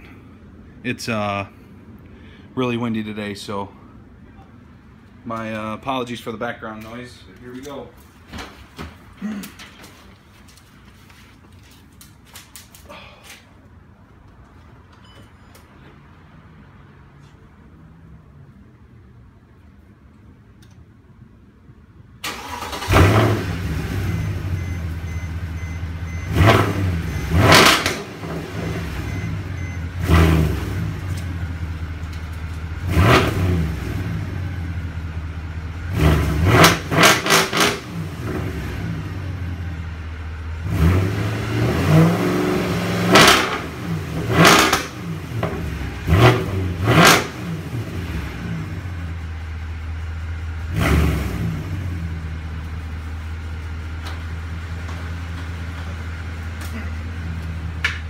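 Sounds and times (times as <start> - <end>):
car engine starting: 22.1 - 58.0
loud engine revving: 22.3 - 24.7, 26.1 - 31.7, 32.8 - 34.8, 35.8 - 39.6, 40.6 - 49.0, 50.6 - 52.3.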